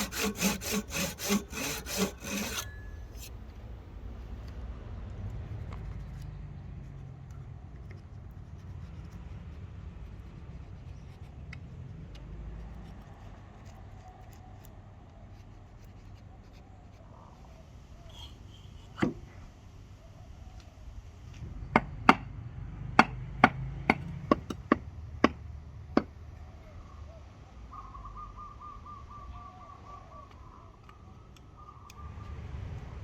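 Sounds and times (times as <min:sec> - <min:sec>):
hand tool striking wood: 0:00.0 - 0:03.3.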